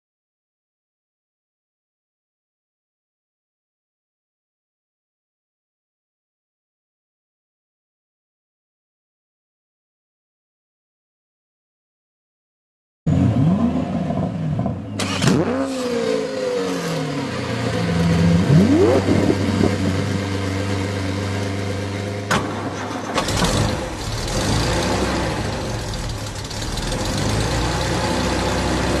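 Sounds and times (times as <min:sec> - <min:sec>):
car engine revving: 0:13.1 - 0:29.0.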